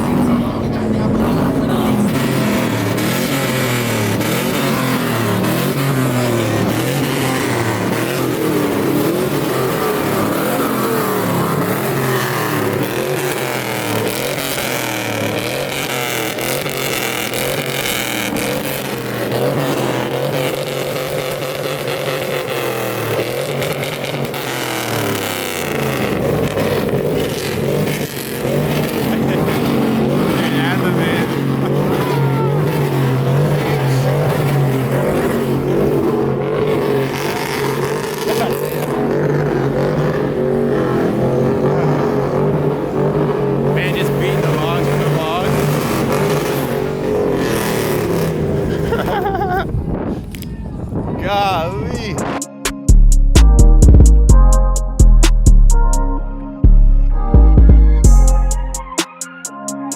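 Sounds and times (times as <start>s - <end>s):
truck engine revving: 0.0s - 51.0s, 51.6s - 59.9s.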